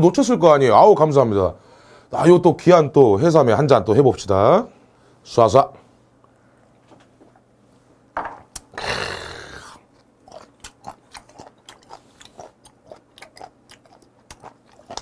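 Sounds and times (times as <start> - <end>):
breathy exhale: 1.6 - 2.1
wet crunchy chewing: 9.6 - 15.0.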